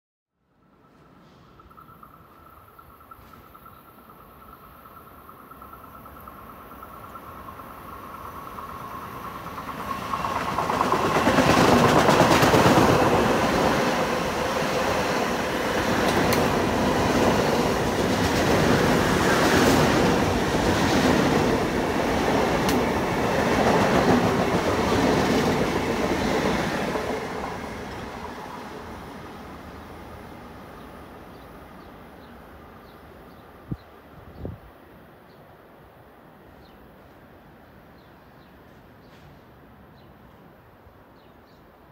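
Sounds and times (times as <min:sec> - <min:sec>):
train wheels clattering on rails: 0:04.9 - 0:28.6.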